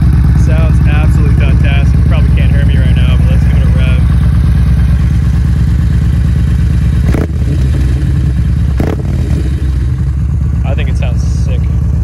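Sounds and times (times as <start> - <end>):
motorcycle exhaust rumbling: 0.0 - 12.0
sharp exhaust crack: 6.8 - 10.1.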